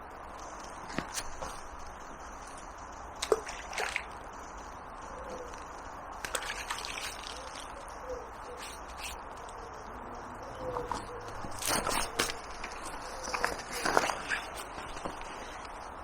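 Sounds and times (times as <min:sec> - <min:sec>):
steady hiss: 0:00.0 - 0:10.3
water sloshing and dripping: 0:00.4 - 0:09.3, 0:10.8 - 0:15.7.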